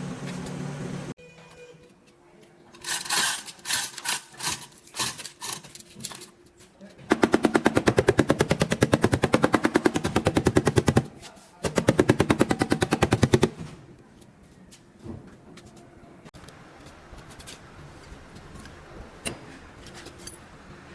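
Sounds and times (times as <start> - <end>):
pneumatic tool hammering: 2.8 - 6.2, 7.1 - 13.6.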